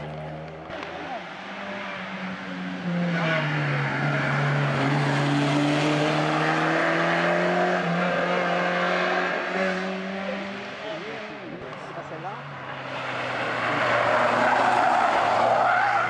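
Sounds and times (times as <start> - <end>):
car engine accelerating past: 0.2 - 11.0.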